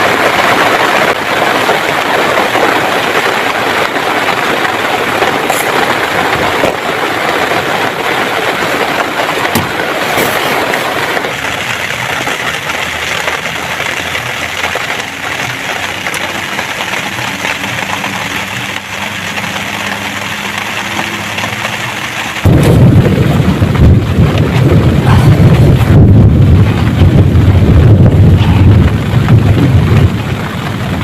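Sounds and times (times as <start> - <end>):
heavy rain falling: 0.0 - 31.0
loud low rumble: 9.4 - 31.0.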